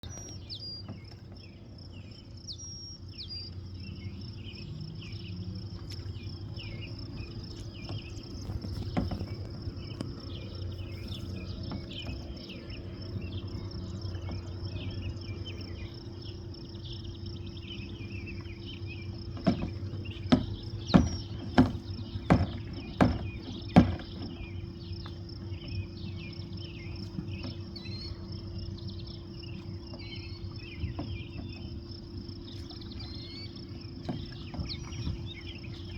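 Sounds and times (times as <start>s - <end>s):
bird-like chirps: 0.0s - 35.9s
insects trilling: 0.0s - 35.9s
low steady hum: 0.0s - 35.9s
sharp knocks: 19.4s - 24.4s.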